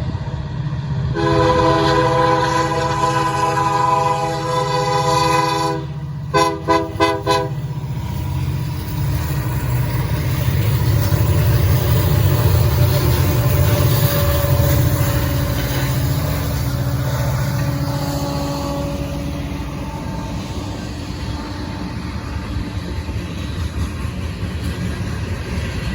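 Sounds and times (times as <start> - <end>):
train passing rumble: 0.0 - 25.9
locomotive air horn toots: 1.2 - 7.7, 12.9 - 22.7.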